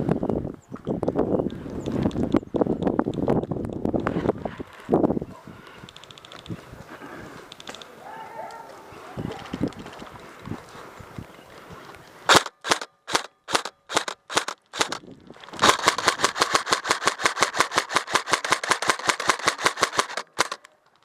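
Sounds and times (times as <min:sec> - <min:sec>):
airsoft gun firing: 0:12.3 - 0:15.0, 0:15.6 - 0:20.7.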